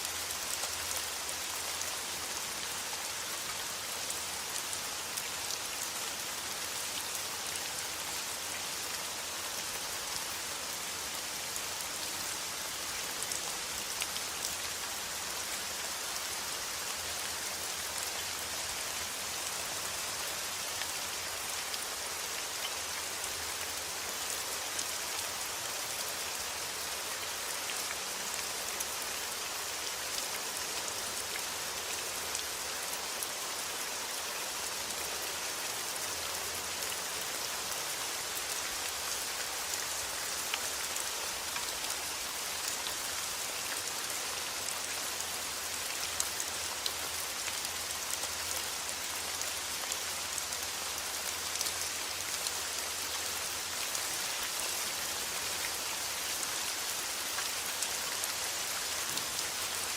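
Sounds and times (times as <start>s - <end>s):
steady rain falling: 0.0s - 59.9s
raindrops ticking on a surface: 59.0s - 59.6s.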